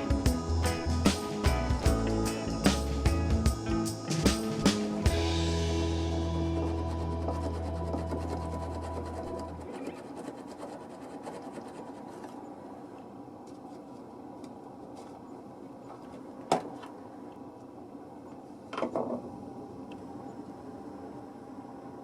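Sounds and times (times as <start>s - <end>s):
background music: 0.0s - 9.6s.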